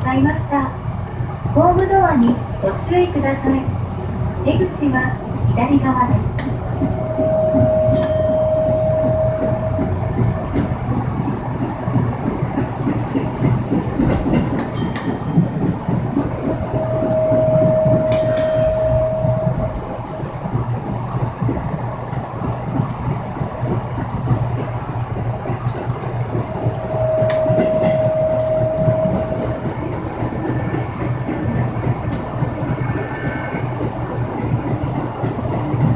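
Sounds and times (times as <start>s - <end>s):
subway train rumbling on rails: 0.0s - 35.9s
wheels clicking over rail joints: 5.9s - 35.9s
held tone: 6.9s - 10.2s, 16.6s - 20.0s, 26.5s - 30.4s.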